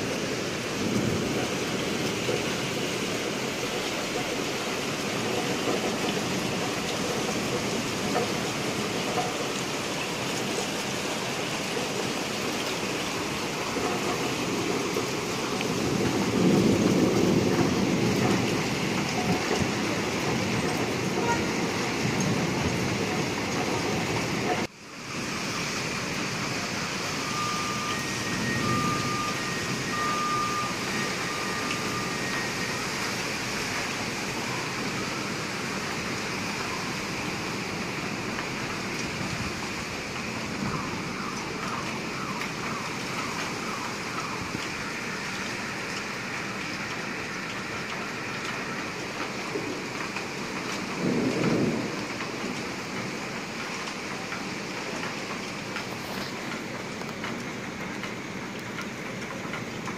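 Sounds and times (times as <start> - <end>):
steady rain falling: 0.0 - 59.9
short electronic beeps: 27.2 - 32.8.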